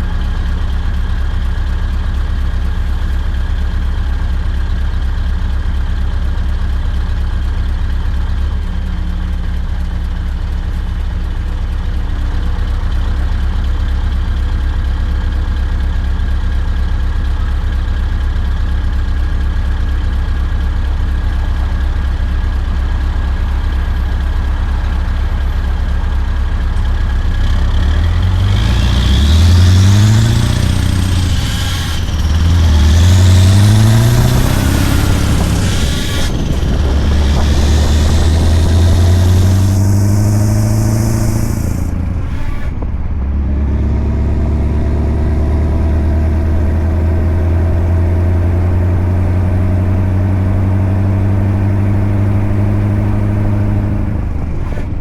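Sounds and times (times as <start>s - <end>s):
diesel truck engine revving: 27.2s - 55.0s.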